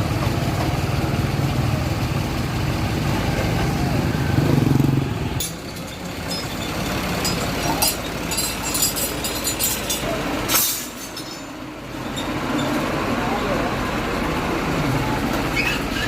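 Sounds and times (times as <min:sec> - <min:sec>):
tractor engine running: 0:00.0 - 0:16.0
metal clinking and clanking: 0:05.4 - 0:12.8.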